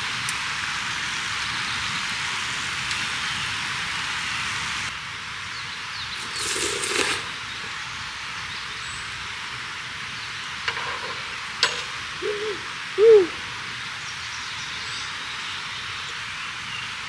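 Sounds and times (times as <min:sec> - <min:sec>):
steady hiss: 0:00.0 - 0:17.0
hooting calls: 0:10.7 - 0:13.9.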